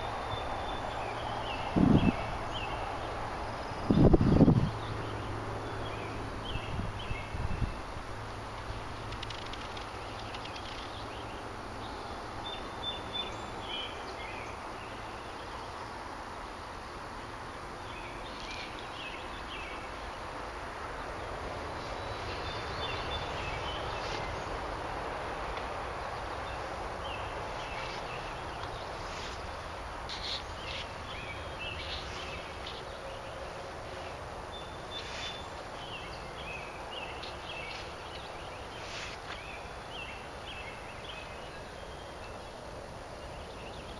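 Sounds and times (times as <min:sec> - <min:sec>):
background hiss: 0:00.0 - 0:43.9
small bird chirping: 0:26.4 - 0:42.4.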